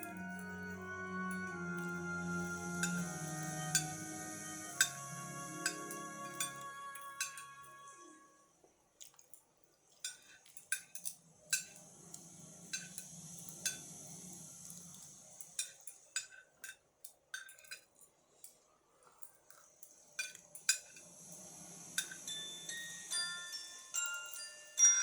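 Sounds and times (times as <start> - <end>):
low hum: 0.0 - 8.3
cutlery clinking on a plate: 9.9 - 11.8, 15.4 - 21.1.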